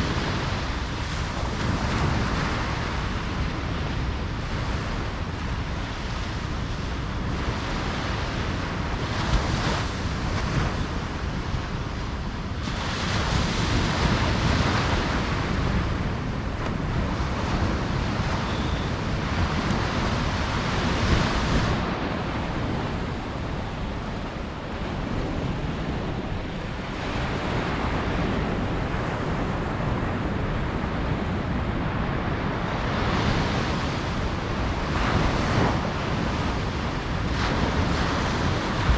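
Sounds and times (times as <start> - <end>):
ocean waves breaking: 0.0 - 38.9.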